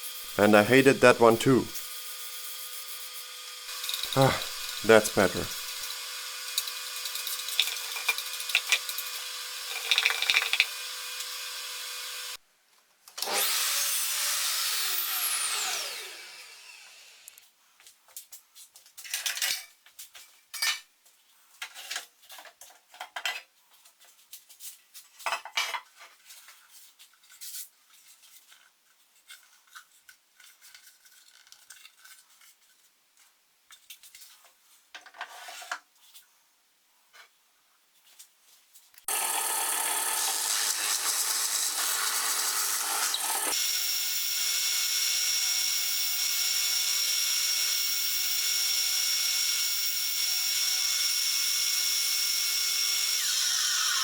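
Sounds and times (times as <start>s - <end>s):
power tool running: 0.0s - 12.4s, 13.2s - 17.4s, 39.1s - 54.0s
machine winding down: 3.7s - 6.0s
scraping and knocking of wood and tools: 6.6s - 10.7s, 17.8s - 36.3s.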